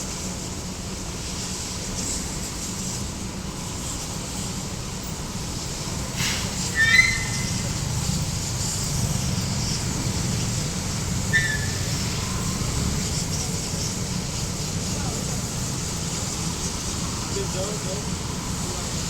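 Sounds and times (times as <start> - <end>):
wind and road noise hiss: 0.0 - 19.0
motorcycle engine rumble: 5.5 - 19.0.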